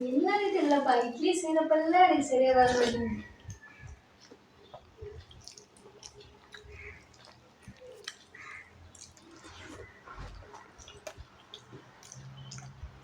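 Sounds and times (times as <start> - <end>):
small eating clicks: 2.6 - 13.0
soft wet chewing: 2.6 - 13.0.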